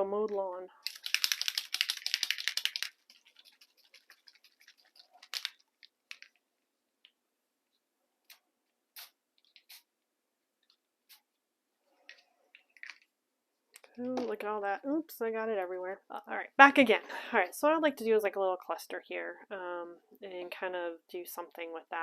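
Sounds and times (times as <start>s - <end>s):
spray bottle hissing puffs: 8.3s - 9.9s.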